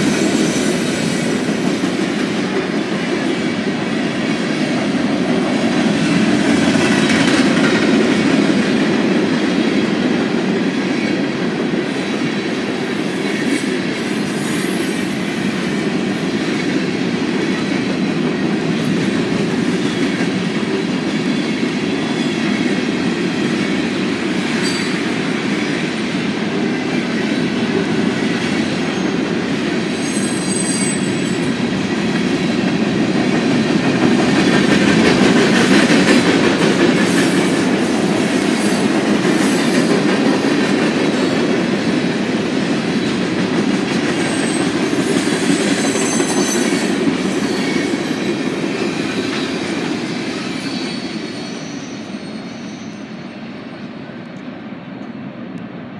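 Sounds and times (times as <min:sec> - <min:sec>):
freight train wheels rumbling: 0:00.0 - 0:55.9.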